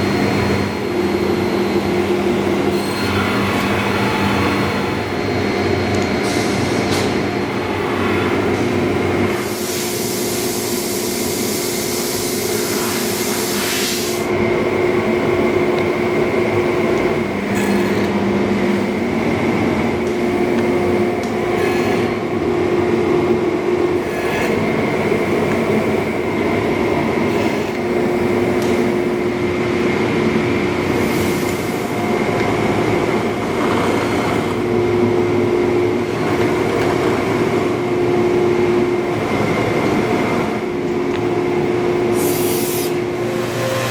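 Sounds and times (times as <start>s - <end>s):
bench saw humming: 12.3s - 29.2s.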